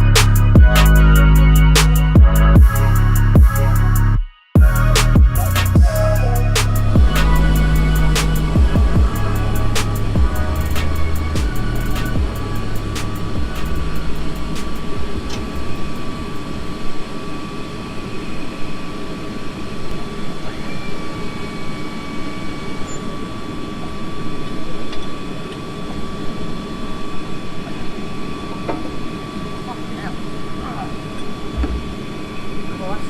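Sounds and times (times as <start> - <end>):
jet turbine whine: 0.0 - 33.0
dense rumbling noise: 4.6 - 17.3.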